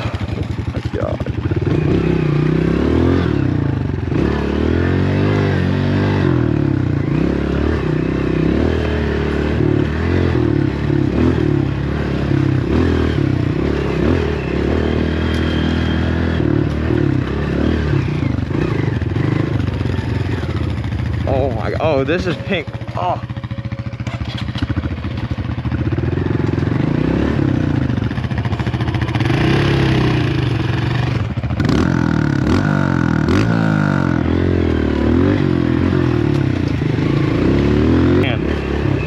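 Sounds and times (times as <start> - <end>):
clatter over rough ground: 0.0 - 2.0, 13.4 - 27.0, 35.7 - 39.0
dirtbike engine revving: 0.0 - 39.0.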